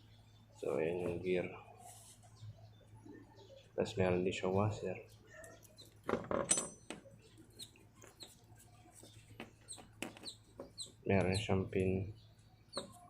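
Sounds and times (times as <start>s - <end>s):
small metal parts clinking: 5.7s - 7.0s.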